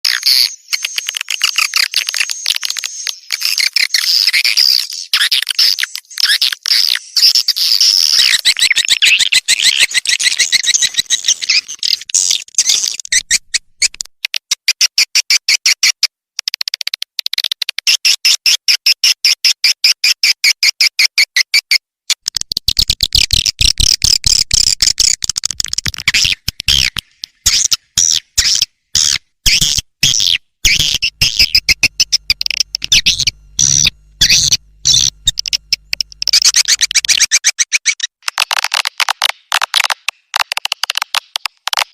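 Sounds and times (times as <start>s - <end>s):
swiftlet twittering chirps: 0.1s - 14.0s, 26.2s - 37.4s.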